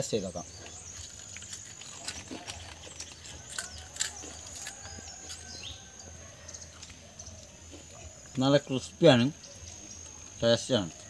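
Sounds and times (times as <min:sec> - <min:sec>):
crunching fried snack: 0:00.5 - 0:06.0.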